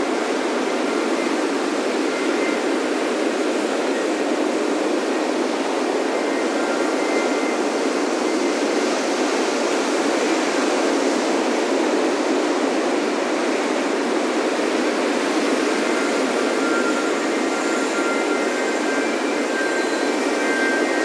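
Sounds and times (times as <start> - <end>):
faint wind chimes: 0.0 - 21.0
ocean surf washing onto beach: 0.0 - 21.0.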